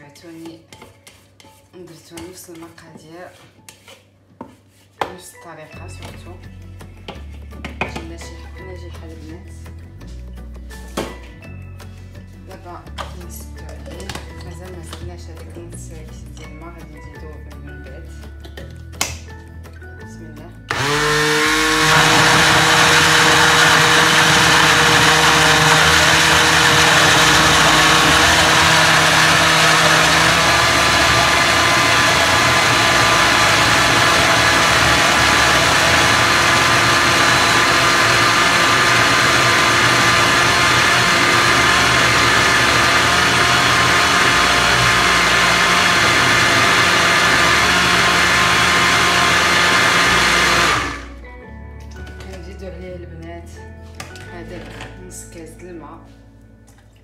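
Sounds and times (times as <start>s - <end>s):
blender motor whirring: 20.7s - 51.1s.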